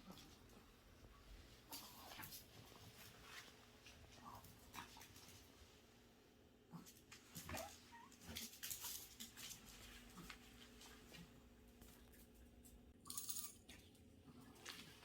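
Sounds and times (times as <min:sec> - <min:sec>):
kittens scuffling: 0:06.8 - 0:12.9.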